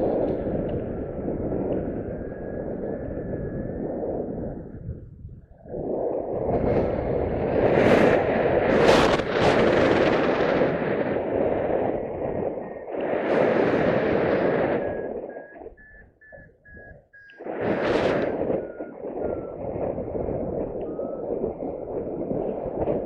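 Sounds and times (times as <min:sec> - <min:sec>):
wind buffeting microphone: 0:00.0 - 0:23.0
high electronic tone: 0:14.5 - 0:22.2
short electronic beeps: 0:14.6 - 0:22.0.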